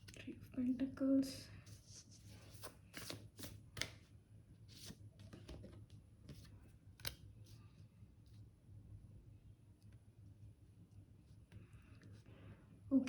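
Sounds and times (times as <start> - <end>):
cards rustling and flicking: 2.4 - 4.1, 4.7 - 7.3.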